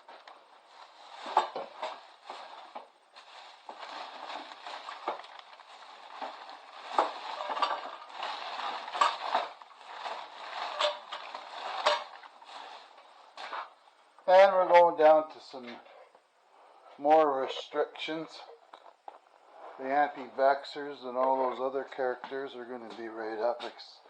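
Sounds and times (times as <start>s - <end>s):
packaging crinkling and rustling: 0.0s - 13.7s
objects clinking set down: 3.7s - 12.4s.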